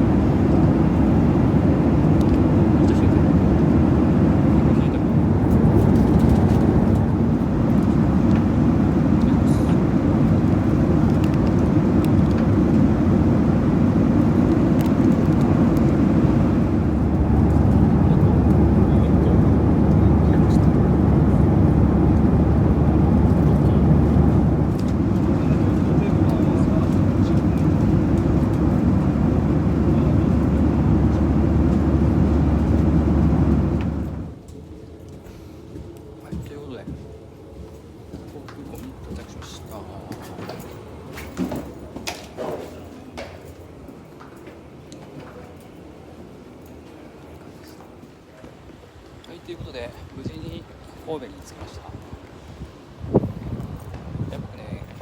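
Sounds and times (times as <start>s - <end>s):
jet engines roaring in cabin: 0.0s - 34.6s, 38.3s - 55.0s
rushing air: 3.4s - 34.4s.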